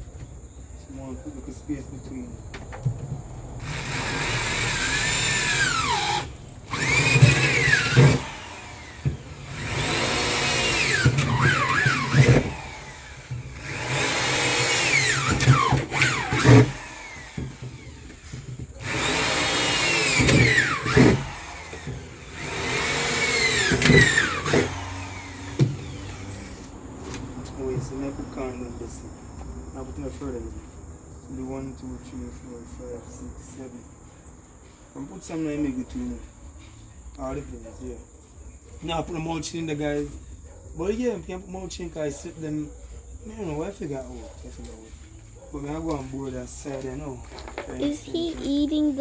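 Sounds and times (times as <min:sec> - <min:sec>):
power drill squealing through metal: 0:03.6 - 0:26.7.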